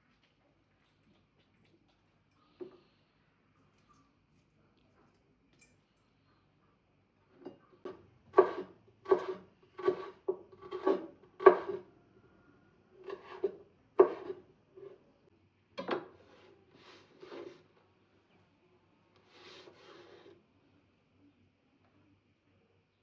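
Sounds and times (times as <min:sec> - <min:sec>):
rasping strokes against wood: 0:08.4 - 0:11.8, 0:13.1 - 0:14.4.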